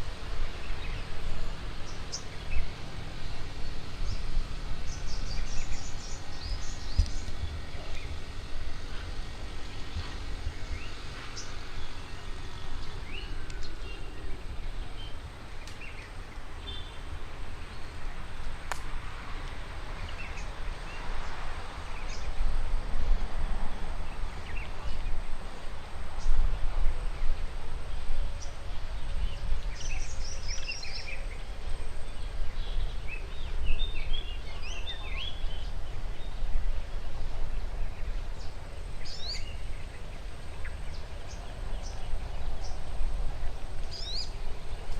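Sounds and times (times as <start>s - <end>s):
songbirds chirping and trilling: 0.0s - 44.9s
steady low rumble: 0.0s - 44.9s.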